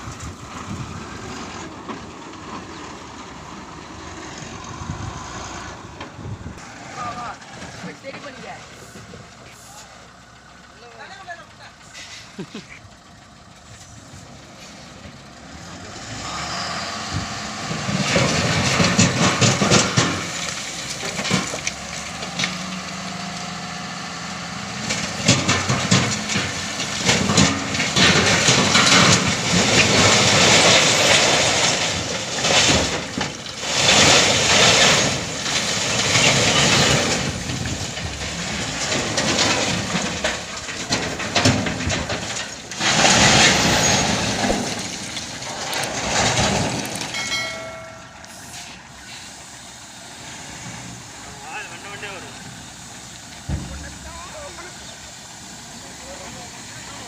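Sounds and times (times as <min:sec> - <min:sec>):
diesel engine revving under load: 0:00.0 - 0:57.0
metallic clanking and rattling: 0:17.2 - 0:23.8, 0:24.4 - 0:48.9, 0:50.6 - 0:55.1.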